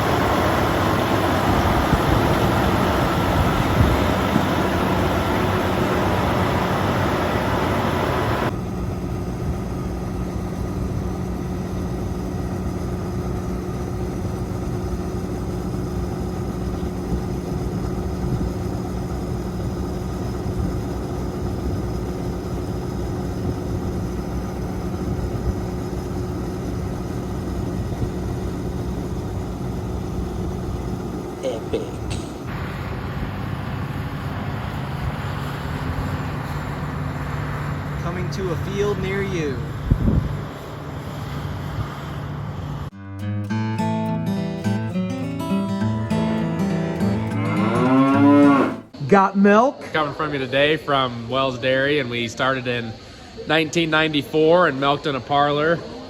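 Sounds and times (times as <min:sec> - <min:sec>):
tractor diesel engine running: 0:00.0 - 0:42.9, 0:44.1 - 0:56.0.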